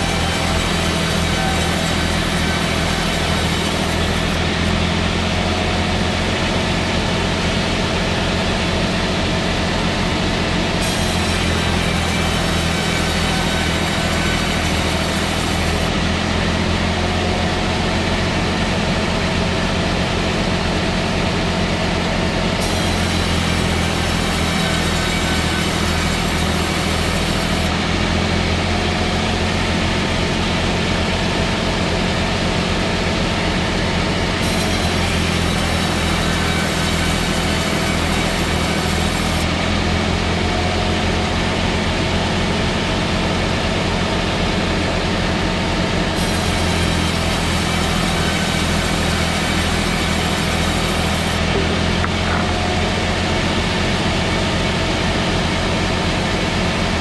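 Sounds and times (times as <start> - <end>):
heavy machine engine droning: 0.0 - 57.0.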